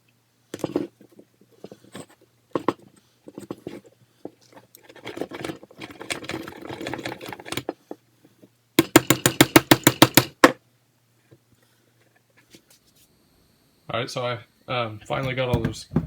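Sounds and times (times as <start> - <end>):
hand tools clattering and scraping: 0.6 - 8.9.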